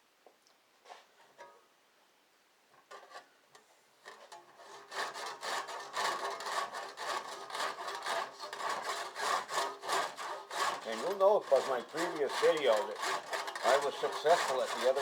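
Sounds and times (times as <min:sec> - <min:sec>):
hand saw cutting: 0:04.1 - 0:15.0.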